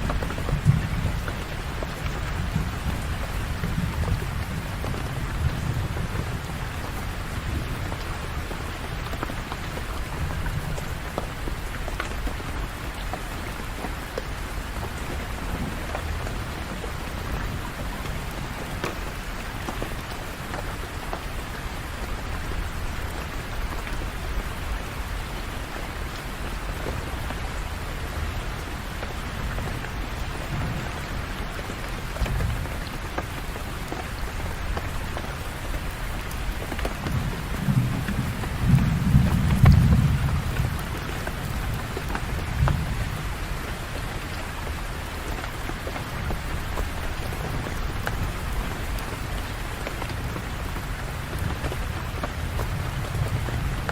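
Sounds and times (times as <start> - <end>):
low rolls of thunder: 0.0 - 8.6, 29.5 - 32.8, 36.9 - 43.5, 51.3 - 53.9
steady rain falling: 0.0 - 53.9.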